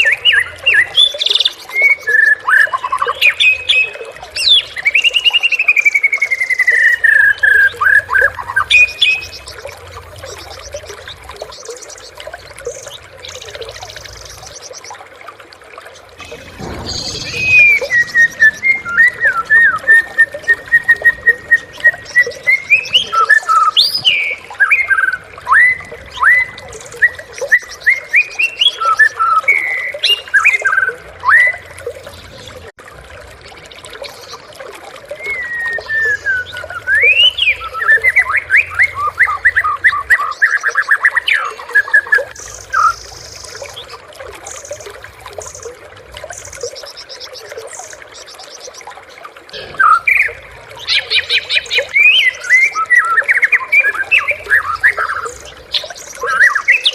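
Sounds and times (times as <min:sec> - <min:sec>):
bird singing whistled phrases: 0:16.2 - 0:31.7, 0:35.1 - 0:43.0, 0:49.6 - 0:56.9.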